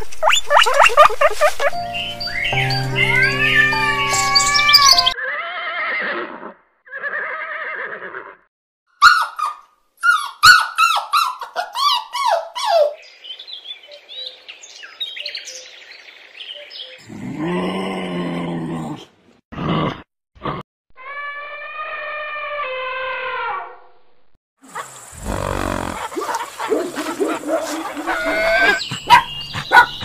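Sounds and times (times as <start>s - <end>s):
birds chirping: 0.2s - 5.2s, 12.7s - 17.2s, 24.7s - 30.0s
horse whinnying: 5.2s - 8.4s, 25.2s - 26.1s, 28.1s - 28.8s
low-pitched animal call: 21.0s - 23.9s, 24.8s - 26.4s, 28.0s - 28.8s.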